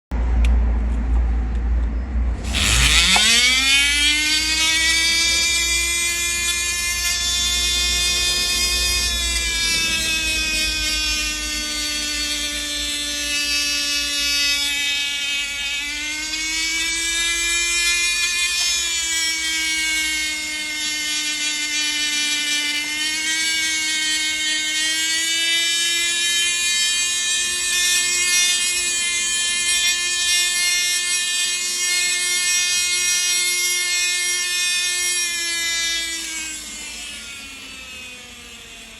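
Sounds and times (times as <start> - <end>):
low hum: 0.2 - 17.8
milling spindle whine: 2.4 - 38.9.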